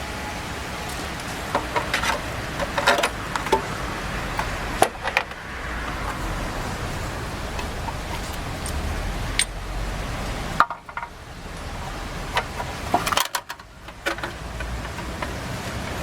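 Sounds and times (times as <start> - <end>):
steady background hiss: 0.0 - 16.0
metal tools clicking and clinking: 1.5 - 5.4, 7.6 - 9.6.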